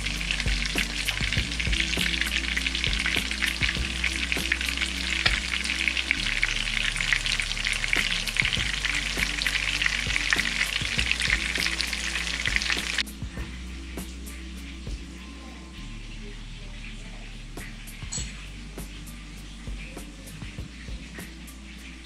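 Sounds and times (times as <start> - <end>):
food sizzling in oil: 0.0 - 13.2
soft background music: 0.0 - 22.0.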